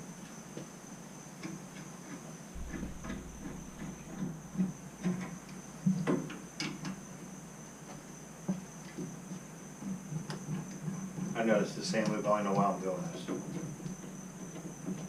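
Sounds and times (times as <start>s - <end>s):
steady high-pitched whine: 2.5s - 8.4s.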